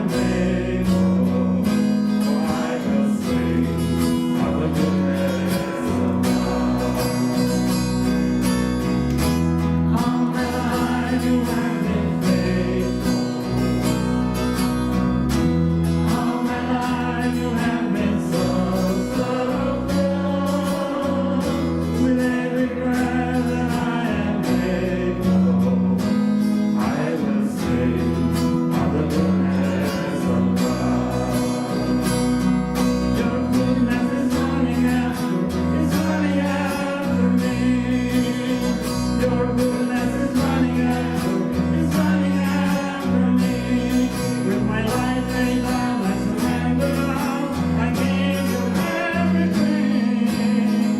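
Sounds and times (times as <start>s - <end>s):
acoustic guitar: 0.0s - 50.9s
person singing: 9.9s - 13.6s, 16.0s - 26.1s, 26.7s - 50.9s.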